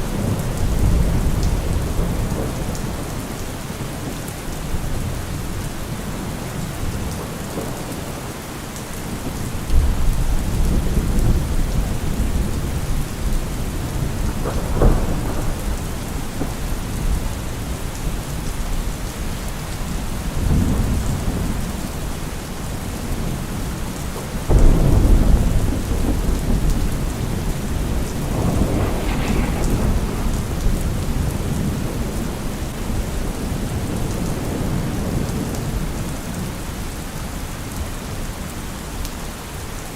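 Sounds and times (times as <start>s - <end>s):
thunder rumbling: 0.0s - 3.4s, 9.1s - 22.1s, 22.7s - 36.5s
heavy rain: 0.0s - 39.9s.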